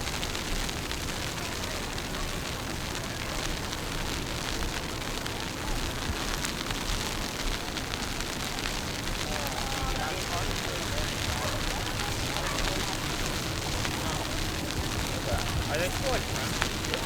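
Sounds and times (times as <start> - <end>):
wind buffeting microphone: 5.8 - 17.0.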